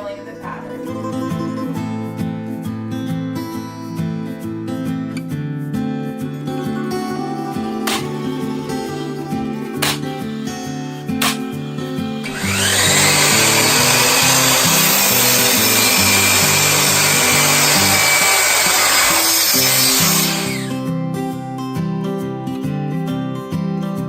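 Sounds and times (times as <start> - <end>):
guitar music: 0.0 - 24.0
electric saw cutting wood: 7.6 - 10.6, 11.2 - 20.8
sharp click: 9.8 - 10.2, 11.2 - 11.5.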